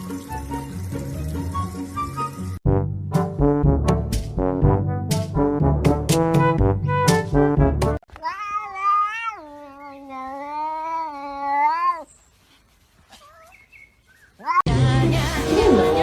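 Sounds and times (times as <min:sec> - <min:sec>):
brass music: 0:02.1 - 0:08.0, 0:14.7 - 0:16.0
cat yowling: 0:08.2 - 0:12.1.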